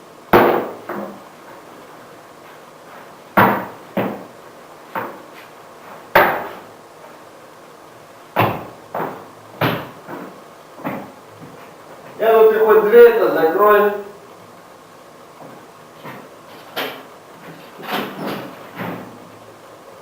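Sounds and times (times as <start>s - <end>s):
sharp knocks in a room: 0.3s - 1.2s, 3.4s - 4.3s, 6.1s - 6.7s, 8.4s - 11.2s.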